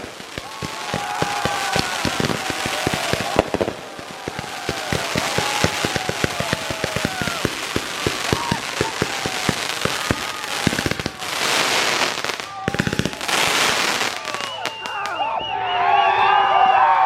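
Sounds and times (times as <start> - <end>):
firecracker pops: 0.0 - 11.2
fireworks hissing spray: 0.0 - 14.2
people shouting and cheering: 0.0 - 17.0.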